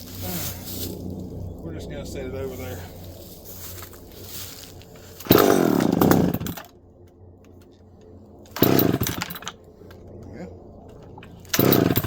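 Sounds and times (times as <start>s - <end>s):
chainsaw engine revving: 5.2s - 6.7s, 8.5s - 9.5s, 11.4s - 12.0s.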